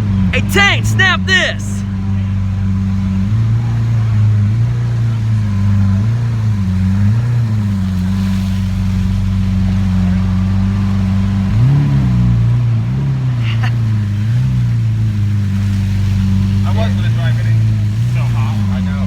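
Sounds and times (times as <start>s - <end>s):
car engine running at low revs: 1.8s - 19.0s.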